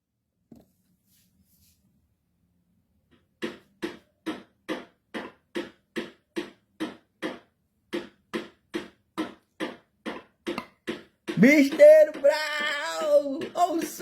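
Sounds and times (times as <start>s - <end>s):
hammer blows ringing: 9.2s - 14.0s.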